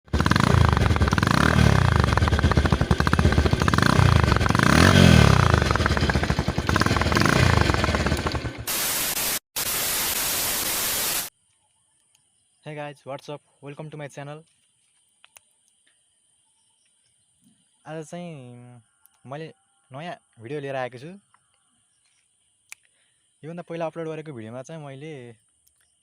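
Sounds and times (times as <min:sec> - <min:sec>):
motorcycle engine revving: 0:00.0 - 0:09.4
static hiss: 0:08.7 - 0:11.3.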